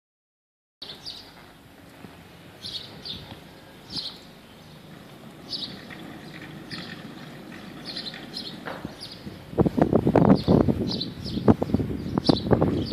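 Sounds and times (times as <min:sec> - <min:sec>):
small birds chirping: 0:00.8 - 0:09.6, 0:10.2 - 0:12.9.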